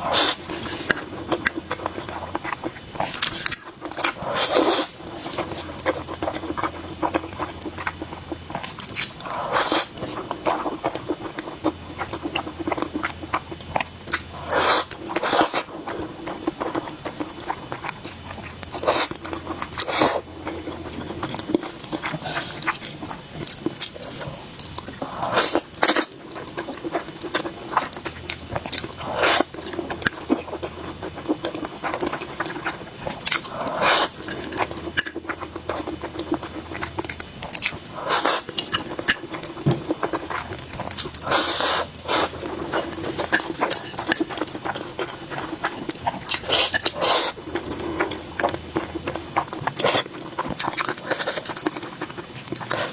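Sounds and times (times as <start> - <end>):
person chewing: 0.0 - 52.9.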